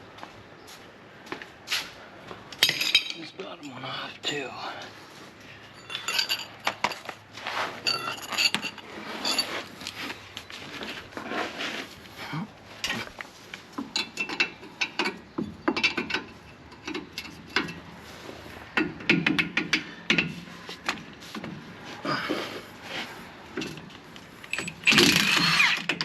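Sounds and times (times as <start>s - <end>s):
metal tools clinking: 2.6s - 4.6s, 5.8s - 7.1s, 7.8s - 10.0s, 24.5s - 25.4s.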